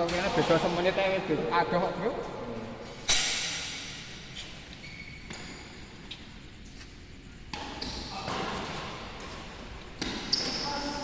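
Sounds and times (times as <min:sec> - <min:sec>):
shoes squeaking on court: 0:04.0 - 0:11.0.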